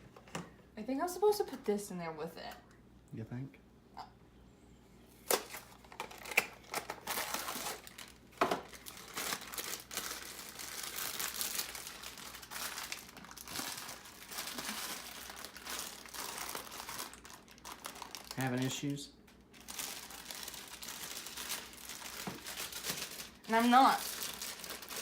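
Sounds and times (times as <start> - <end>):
plastic bag snapping: 5.2 - 25.0
plastic bag crinkling: 5.3 - 25.0.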